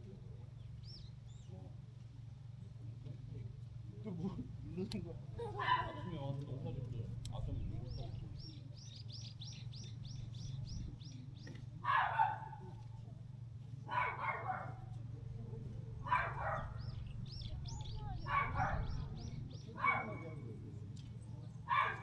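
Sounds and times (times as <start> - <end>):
bird chirping: 0.6 - 1.6, 7.3 - 11.6, 16.1 - 20.3
dog barking: 5.6 - 6.1, 11.8 - 12.6, 13.9 - 14.9, 16.0 - 17.0, 18.1 - 20.4, 21.6 - 22.0.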